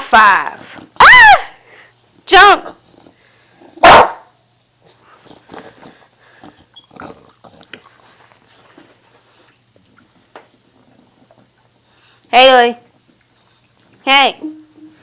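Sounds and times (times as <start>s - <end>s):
dog barking: 3.8s - 4.4s.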